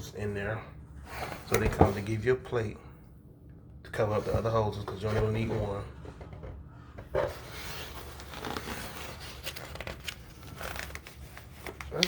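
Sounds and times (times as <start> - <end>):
packaging and paper crinkling: 7.3 - 12.0.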